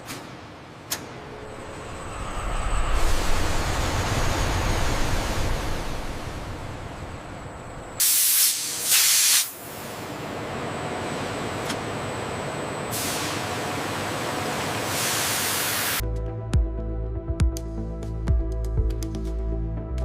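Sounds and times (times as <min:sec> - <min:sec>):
pressurised spray hissing: 0:08.0 - 0:09.6.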